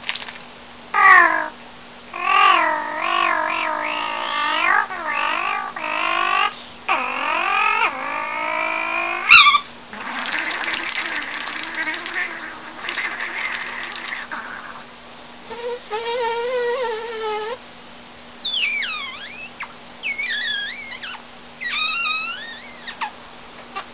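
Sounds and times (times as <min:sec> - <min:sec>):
child squealing: 0:01.0 - 0:01.5, 0:02.2 - 0:14.8, 0:18.4 - 0:23.1
child yelping: 0:01.0 - 0:01.5, 0:02.1 - 0:14.4
breathy raspy vocal noises: 0:09.9 - 0:14.9.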